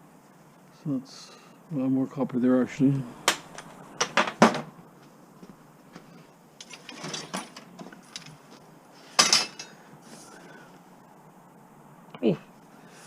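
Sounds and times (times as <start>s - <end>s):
metal clattering and scraping: 6.6s - 8.5s.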